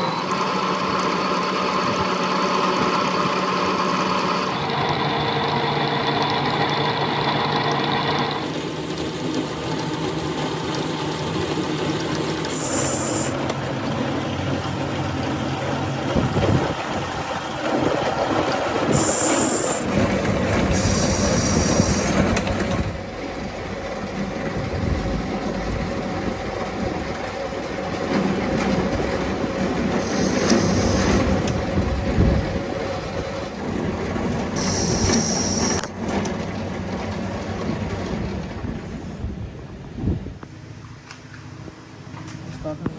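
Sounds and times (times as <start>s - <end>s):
workshop machinery running: 0.0s - 42.9s
high-pitched squealing: 12.4s - 13.5s, 18.9s - 20.0s, 20.7s - 22.5s, 30.0s - 31.5s, 34.6s - 36.0s.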